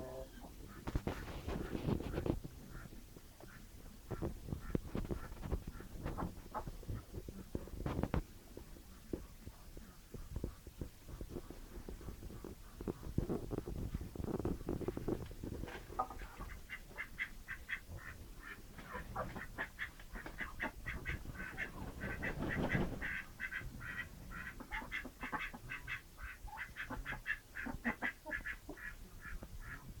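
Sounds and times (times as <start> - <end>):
ducks quacking: 0.0 - 7.2, 15.8 - 30.0.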